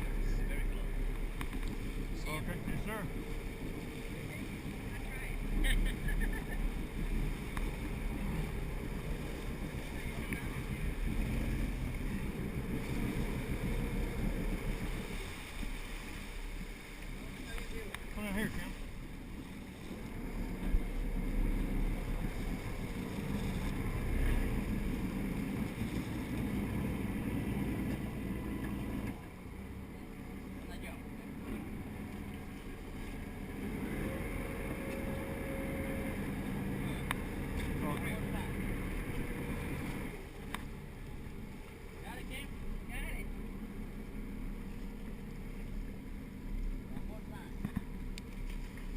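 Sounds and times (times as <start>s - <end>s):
boat motor running: 0.0s - 48.9s
rushing water: 0.0s - 48.9s.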